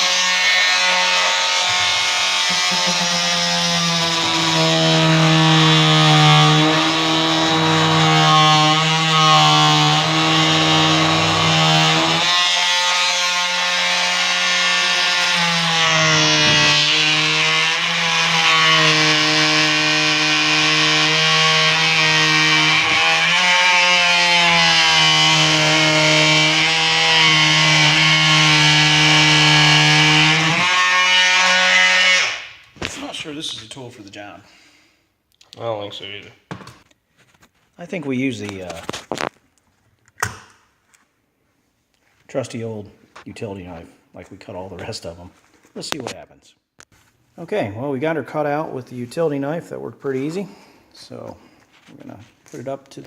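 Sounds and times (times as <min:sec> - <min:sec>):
electric saw cutting rubber: 0:00.0 - 0:32.9.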